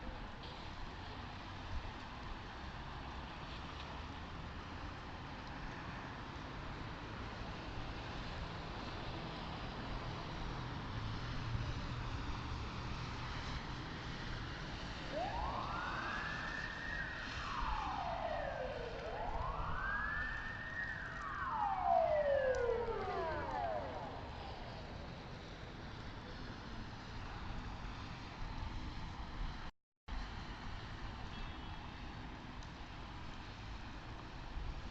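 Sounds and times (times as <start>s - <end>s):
road and engine noise: 0.0s - 34.9s
emergency vehicle siren wailing: 1.5s - 29.2s.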